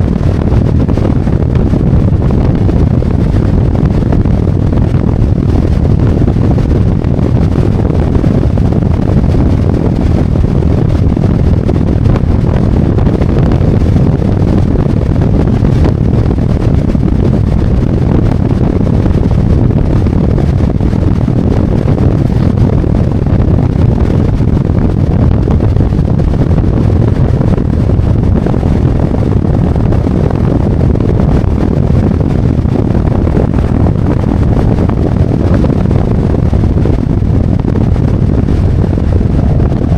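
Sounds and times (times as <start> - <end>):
wind rushing over microphone: 0.0 - 39.9
motorcycle engine running: 33.5 - 39.9.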